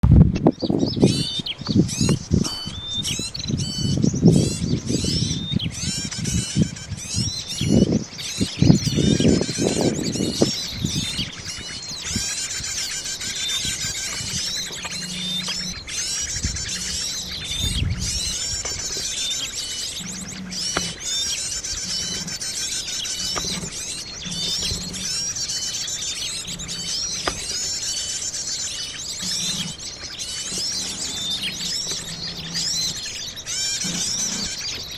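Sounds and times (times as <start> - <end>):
small birds chirping: 0.4 - 34.9
rustling: 8.2 - 34.9.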